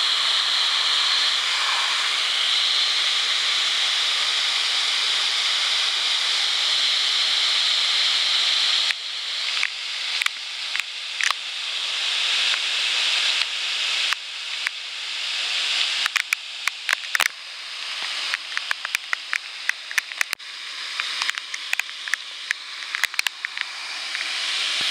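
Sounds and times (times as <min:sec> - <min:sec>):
sharp clicks: 0:16.0 - 0:17.3, 0:18.0 - 0:20.4, 0:21.0 - 0:24.3.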